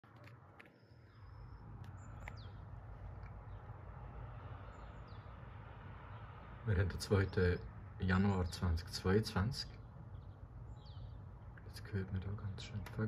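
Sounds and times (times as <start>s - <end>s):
small birds whistling and chirping: 9.8s - 11.2s.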